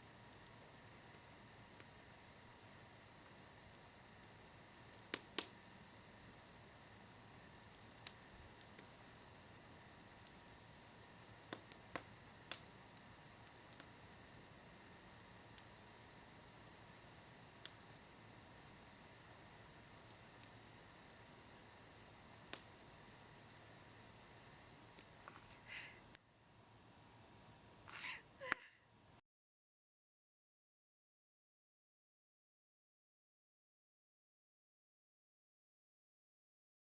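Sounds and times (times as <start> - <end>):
campfire crackling and popping: 0.0 - 26.2
faint steady hiss: 0.0 - 29.2.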